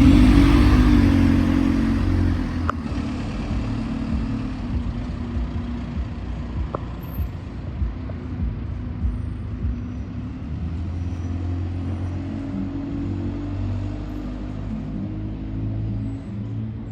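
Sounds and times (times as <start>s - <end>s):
bus engine humming: 0.0s - 16.9s.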